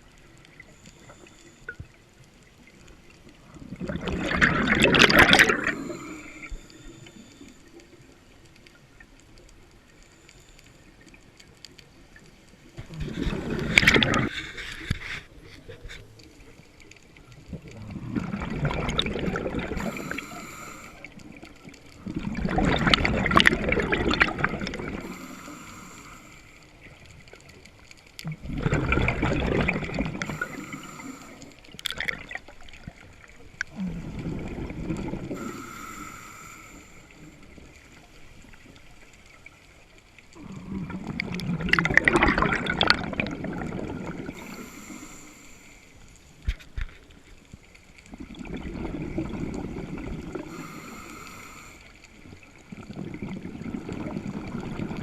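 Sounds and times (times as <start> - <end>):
exhaled air bubbling: 2.6 - 7.2, 12.8 - 27.6, 28.2 - 45.6, 47.9 - 55.0
regulator inhalation hiss: 5.7 - 7.7, 19.8 - 21.2, 25.0 - 26.6, 30.2 - 31.6, 35.3 - 37.2, 44.4 - 46.0, 50.5 - 52.1.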